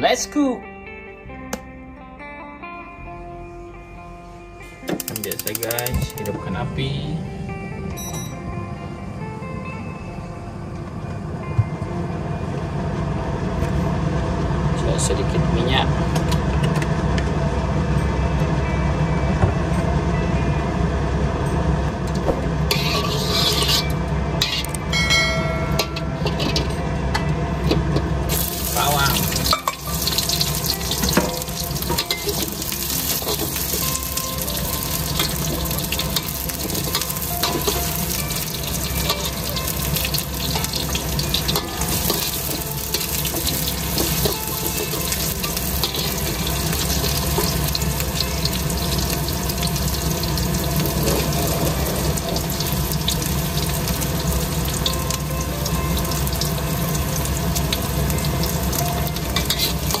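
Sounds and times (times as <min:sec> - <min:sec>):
metal spatula scraping a wok: 0:22.7 - 0:24.8, 0:26.2 - 0:26.7, 0:59.4 - 1:00.0
onions sizzling in hot oil: 0:28.3 - 1:00.0.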